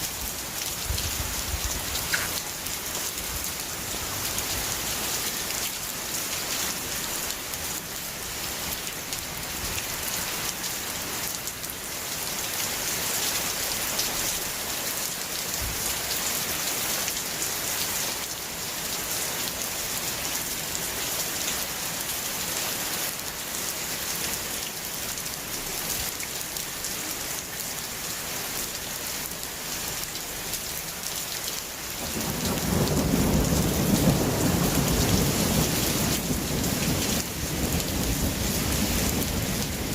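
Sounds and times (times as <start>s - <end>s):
steady rain falling: 0.0s - 39.9s
low rumble of thunder: 32.0s - 39.9s.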